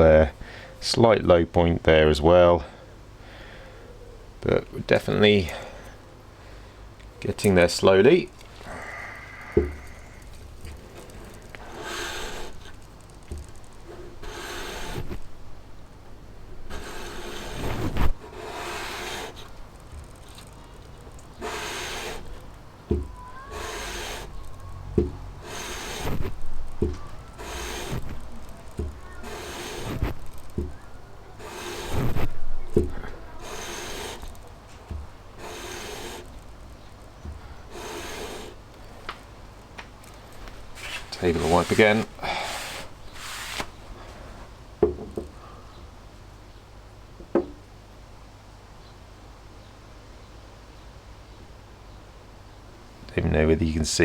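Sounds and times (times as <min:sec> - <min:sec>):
metal rasping on sandpaper: 0:11.0 - 0:12.8, 0:13.9 - 0:15.2, 0:16.7 - 0:19.5, 0:21.4 - 0:22.4, 0:23.4 - 0:24.5, 0:25.3 - 0:30.7, 0:31.3 - 0:34.5, 0:35.4 - 0:36.5, 0:37.7 - 0:38.6, 0:40.8 - 0:43.7.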